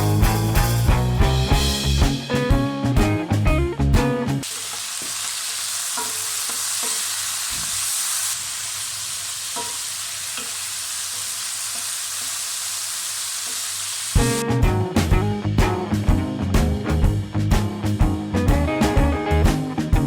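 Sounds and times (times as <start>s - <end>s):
background music: 0.0s - 4.4s
food sizzling in a pan: 4.4s - 14.4s.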